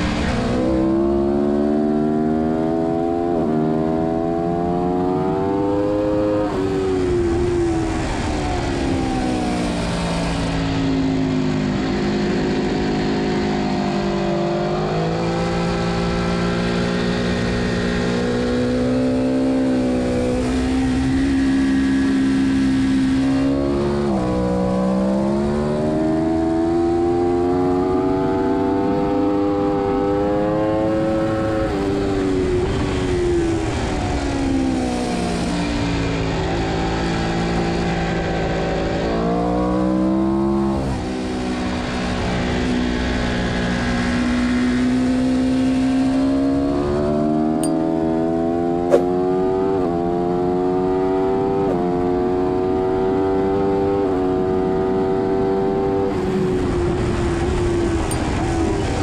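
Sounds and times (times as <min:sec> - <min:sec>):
racing motorcycle engine: 0:00.0 - 0:59.0
wind noise: 0:05.0 - 0:14.0, 0:30.1 - 0:39.0, 0:55.9 - 0:59.0
sharp click: 0:48.9 - 0:49.1.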